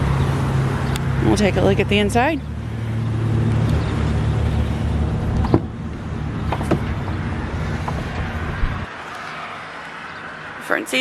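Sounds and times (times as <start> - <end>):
truck engine idling: 0.0 - 8.9
sharp clicks and knocks: 5.3 - 5.7, 6.5 - 6.9.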